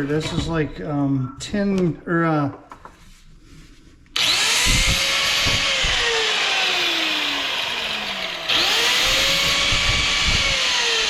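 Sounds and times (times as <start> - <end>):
power tool motor on metal: 4.2 - 11.0.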